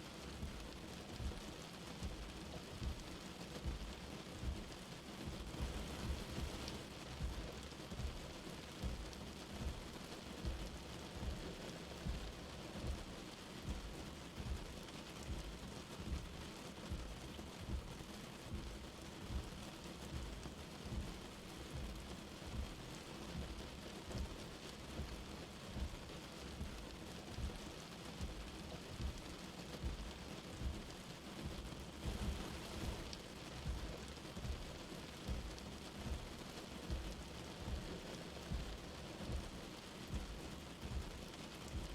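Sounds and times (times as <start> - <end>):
light rain falling: 0.0 - 41.9
soft low thuds: 3.6 - 9.8, 10.4 - 22.8, 28.2 - 41.9.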